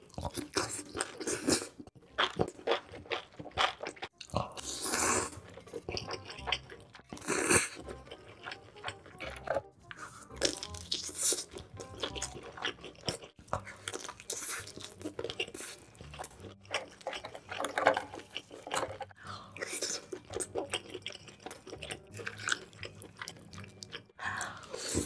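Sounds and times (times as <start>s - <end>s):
wet chewing and biting: 0.0s - 25.0s
soft background music: 2.0s - 25.0s
loud slurping: 4.4s - 5.6s.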